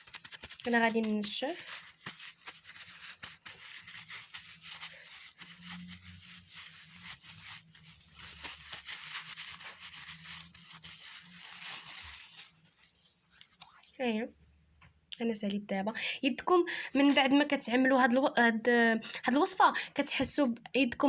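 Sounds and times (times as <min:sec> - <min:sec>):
hands rubbing and patting: 0:00.0 - 0:14.0.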